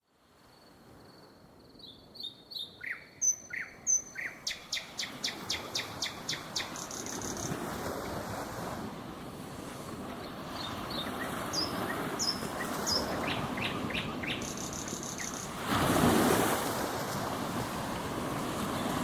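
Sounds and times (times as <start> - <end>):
small birds chirping: 1.8 - 7.6, 10.6 - 15.6
ocean waves on shore: 2.8 - 19.0.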